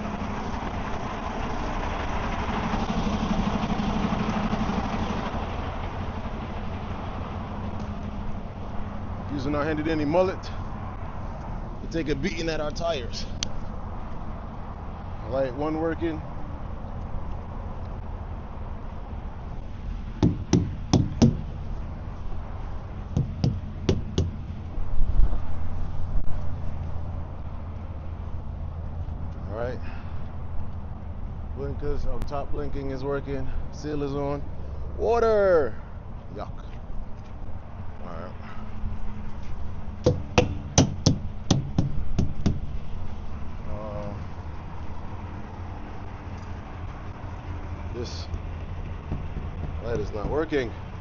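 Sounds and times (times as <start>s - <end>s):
diesel truck engine idling: 0.0s - 24.8s, 37.9s - 51.0s
mallet thumping tires: 20.2s - 21.6s, 23.1s - 24.4s, 40.0s - 42.8s, 48.3s - 50.8s.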